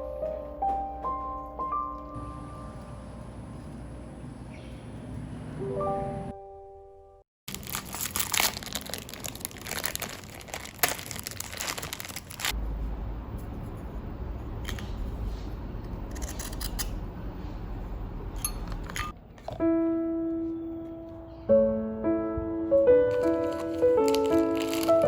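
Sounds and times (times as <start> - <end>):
plastic packaging crinkling: 7.5 - 12.6, 23.1 - 25.0.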